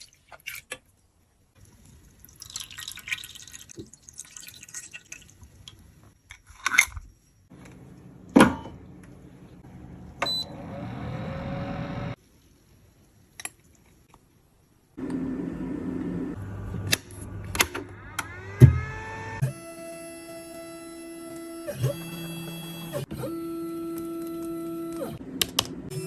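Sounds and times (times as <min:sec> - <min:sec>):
liquid pouring: 0:01.6 - 0:05.7.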